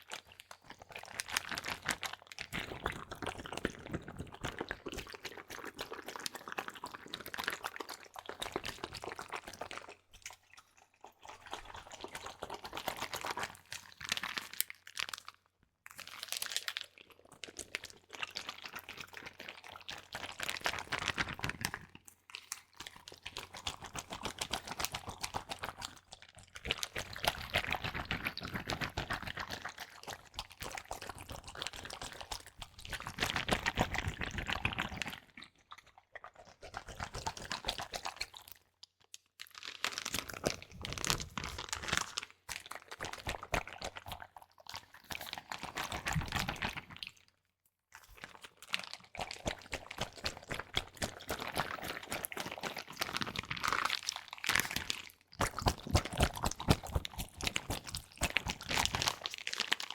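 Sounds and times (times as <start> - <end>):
crackling and crinkling: 38.0 - 47.4, 48.0 - 59.9.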